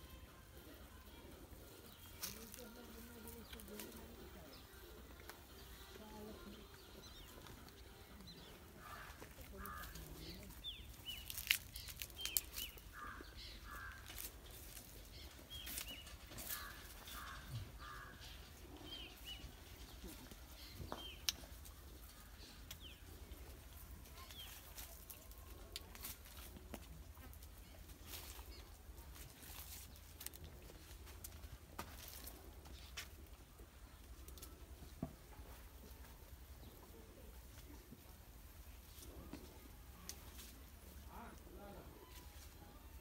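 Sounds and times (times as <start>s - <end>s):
birds chirping: 1.8s - 26.4s.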